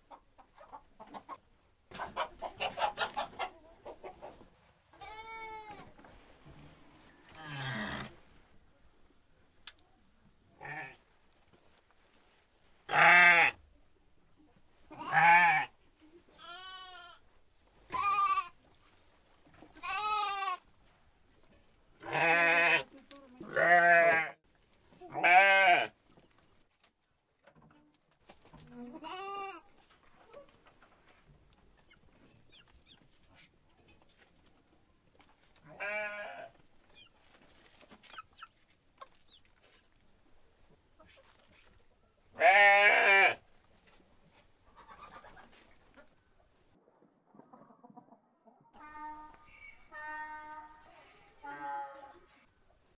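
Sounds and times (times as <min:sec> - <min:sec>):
goats bleating: 0:12.9 - 0:13.6, 0:14.9 - 0:15.7, 0:16.4 - 0:17.2, 0:19.8 - 0:20.6, 0:22.0 - 0:22.9, 0:23.5 - 0:24.4, 0:25.1 - 0:25.9, 0:29.0 - 0:29.6, 0:35.7 - 0:36.5, 0:42.4 - 0:43.4.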